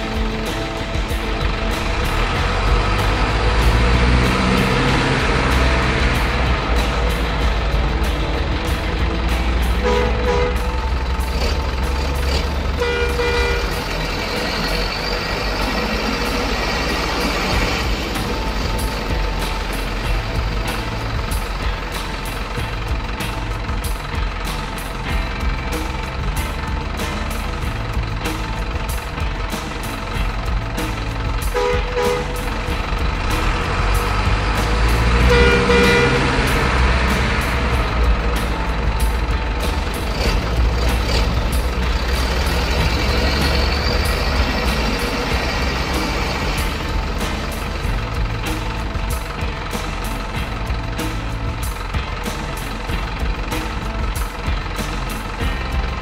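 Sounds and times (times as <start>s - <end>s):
truck engine running: 0.0s - 56.0s
short horn toots: 9.7s - 11.6s, 12.3s - 16.2s, 31.5s - 32.5s, 35.2s - 37.7s.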